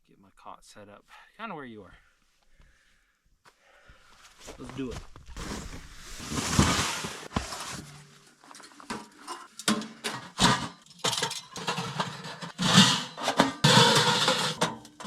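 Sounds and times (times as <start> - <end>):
metal clanks and rattles: 7.4 - 15.0
loud metal clatter: 9.7 - 15.0.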